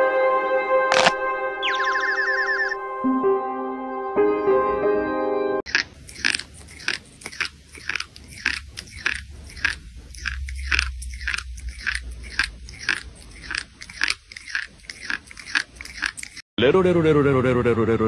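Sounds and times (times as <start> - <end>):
crunching crisp snacks: 0.9 - 1.8, 5.7 - 16.4.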